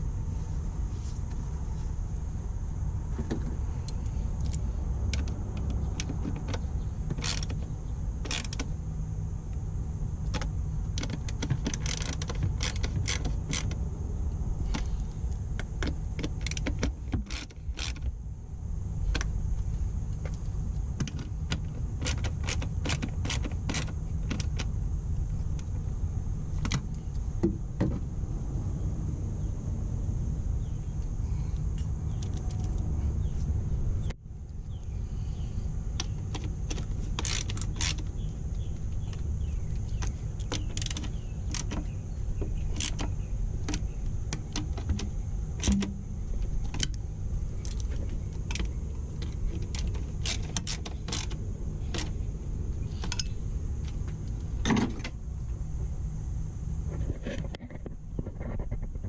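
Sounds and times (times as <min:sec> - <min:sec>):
steady low rumble: 0:00.0 - 0:59.0
hand ratchet clicking: 0:36.0 - 0:38.2.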